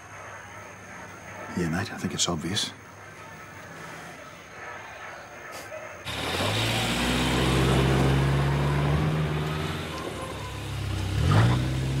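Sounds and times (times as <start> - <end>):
vehicle engine running: 6.1 - 12.0.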